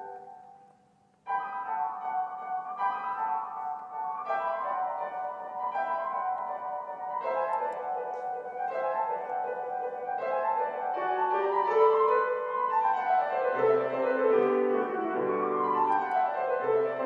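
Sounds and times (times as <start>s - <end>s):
gentle piano instrumental: 0.0s - 17.0s.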